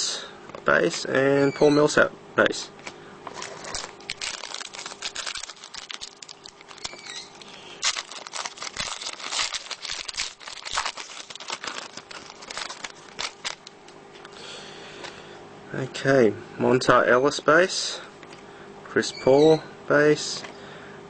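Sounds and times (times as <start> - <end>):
foil wrapper crinkling and tearing: 3.3 - 13.8.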